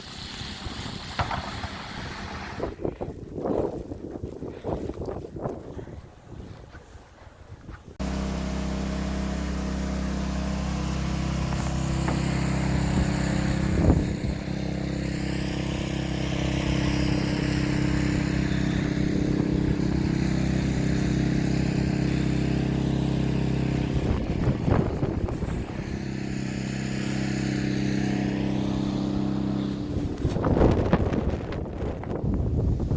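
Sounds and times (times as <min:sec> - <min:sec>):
engine humming steadily: 0:08.0 - 0:32.5.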